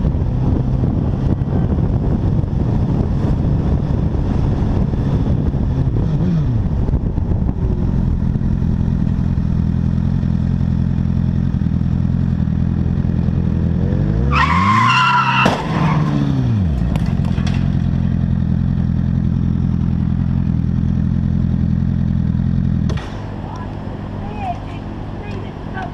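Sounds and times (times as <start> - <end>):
vehicle running: 0.0 - 25.9
tyres squealing in a skid: 14.3 - 16.2.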